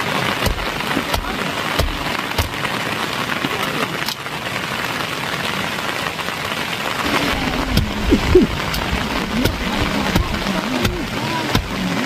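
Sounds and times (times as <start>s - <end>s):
steady rain falling: 0.0s - 12.0s
low wavering pitched sounds: 7.1s - 10.8s.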